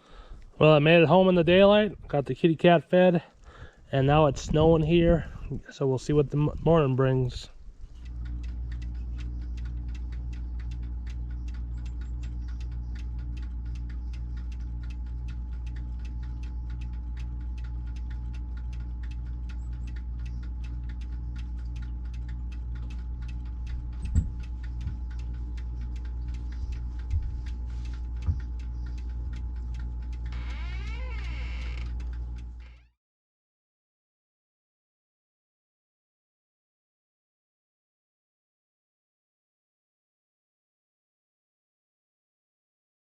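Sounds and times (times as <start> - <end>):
light ticking: 3.2 - 32.9.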